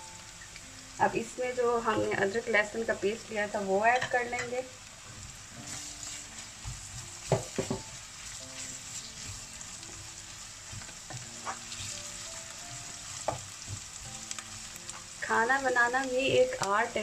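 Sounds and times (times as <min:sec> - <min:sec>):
onions sizzling in hot oil: 0:00.0 - 0:17.0
wooden spatula scraping a pan: 0:05.6 - 0:09.8, 0:10.6 - 0:14.0.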